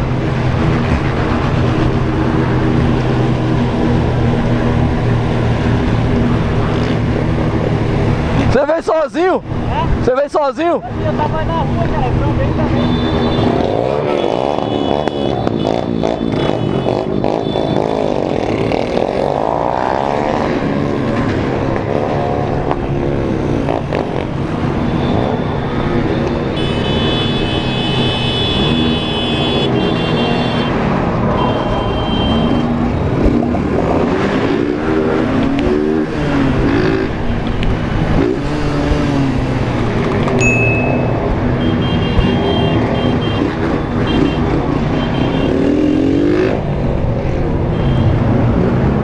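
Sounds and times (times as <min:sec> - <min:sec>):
motorcycle engines revving: 0:00.0 - 0:49.0
high steady tone: 0:40.4 - 0:41.4.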